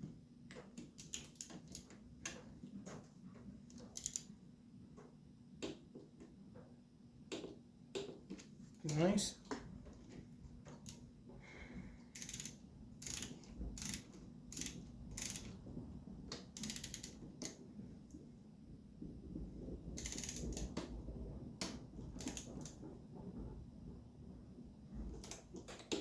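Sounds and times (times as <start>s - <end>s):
socket ratchet clicking: 1.0s - 2.4s, 3.8s - 4.3s, 12.2s - 15.6s, 16.6s - 17.6s, 20.0s - 20.6s.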